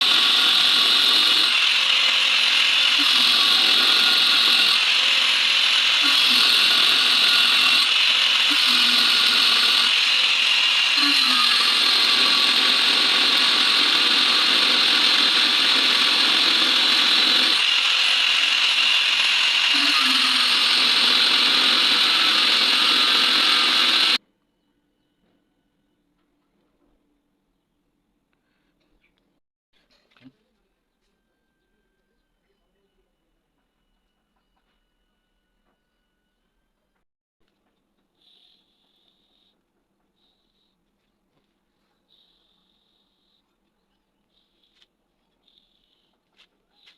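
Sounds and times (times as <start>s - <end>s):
mechanical rattling and whirring: 0.0s - 24.2s.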